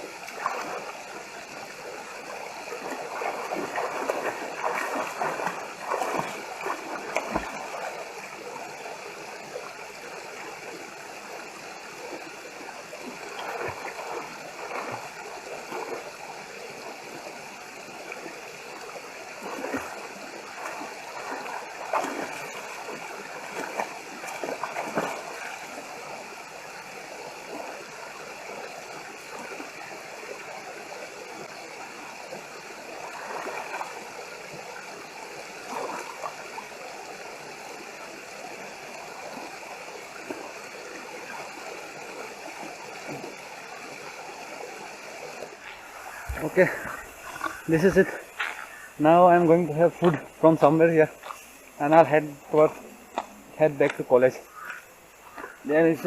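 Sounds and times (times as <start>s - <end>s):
stream water rushing: 0.0s - 56.0s
person swimming splashes: 0.2s - 0.9s, 2.4s - 8.0s, 13.0s - 16.1s, 19.4s - 25.9s, 33.0s - 34.0s, 35.6s - 36.6s, 45.5s - 49.0s.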